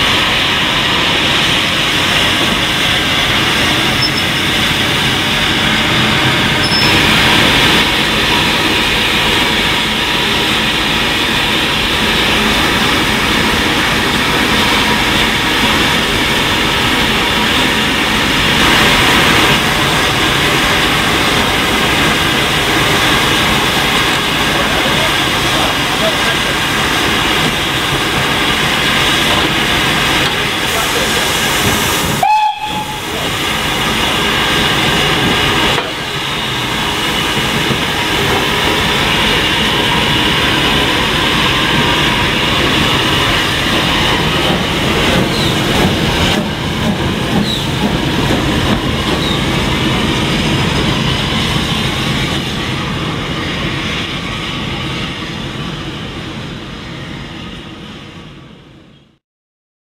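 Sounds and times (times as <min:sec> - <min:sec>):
steam locomotive exhaust: 0:00.0 - 0:58.2.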